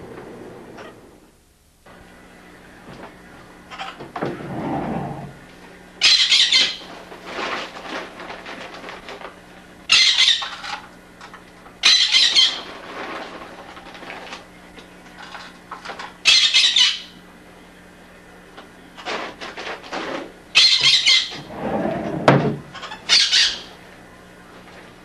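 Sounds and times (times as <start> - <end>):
pet bird shrieking: 11.8 - 12.7, 20.6 - 21.5, 22.8 - 23.7.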